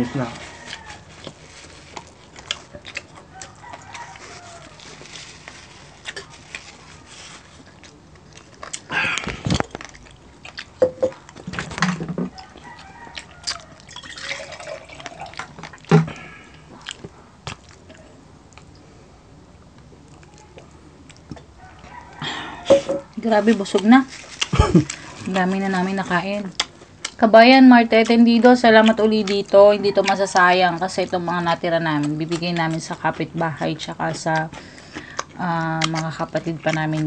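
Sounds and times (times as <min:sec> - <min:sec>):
crisp skin crackling: 0:00.2 - 0:10.1
chewing and lip smacks: 0:00.6 - 0:11.5, 0:12.3 - 0:14.0, 0:16.5 - 0:18.9, 0:19.6 - 0:22.2, 0:26.4 - 0:27.2, 0:27.9 - 0:37.0.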